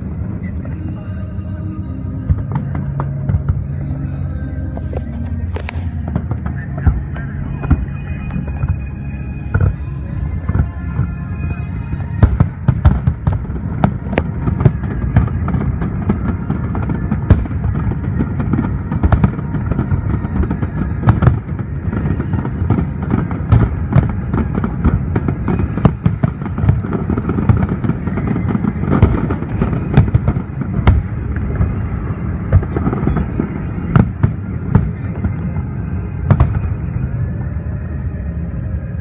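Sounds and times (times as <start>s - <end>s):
continuous low rumble: 0.0s - 39.0s
firework booms and cracks: 12.0s - 36.9s.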